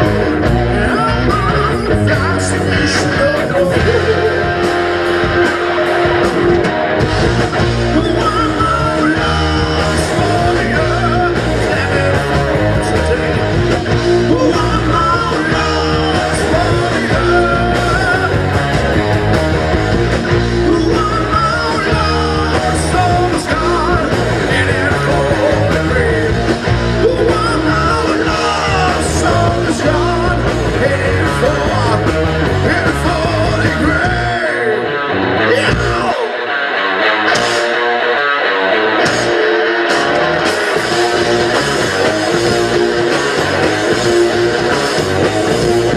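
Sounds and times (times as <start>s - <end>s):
bass: 0.0s - 45.9s
drums: 0.0s - 45.9s
guitars: 0.0s - 45.9s
person singing: 0.6s - 4.7s, 7.8s - 18.6s, 20.5s - 36.5s.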